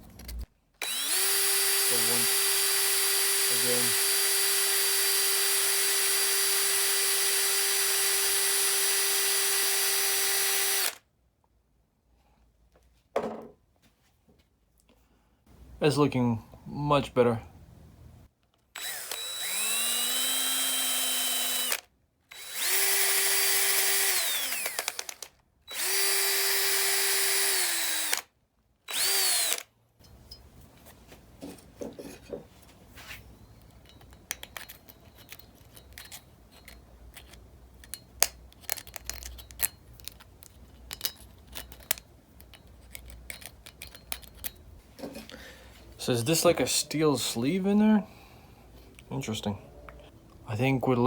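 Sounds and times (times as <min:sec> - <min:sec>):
electric drill whining: 0:00.8 - 0:11.0, 0:18.8 - 0:28.3, 0:28.9 - 0:29.7
metal parts clicking and tapping: 0:33.6 - 0:45.1.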